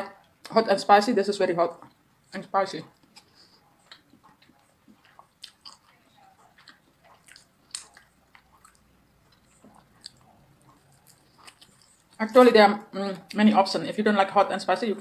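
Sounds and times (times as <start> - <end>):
person chewing: 2.9 - 12.2.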